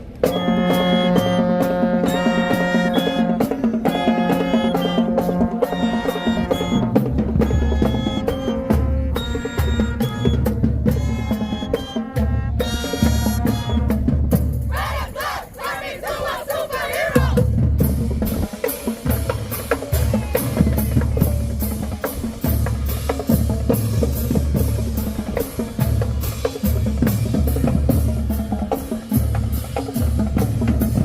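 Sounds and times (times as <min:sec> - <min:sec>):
marching drums and cymbals beat: 0:00.0 - 0:31.0
voices chanting: 0:14.7 - 0:17.5.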